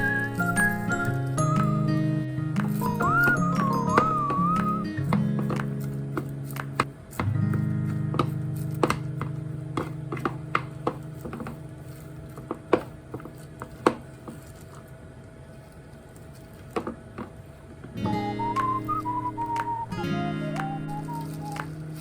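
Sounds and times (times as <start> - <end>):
guitar music: 0.0 - 12.1, 18.0 - 22.0
kitchen clicks and taps: 2.6 - 11.6.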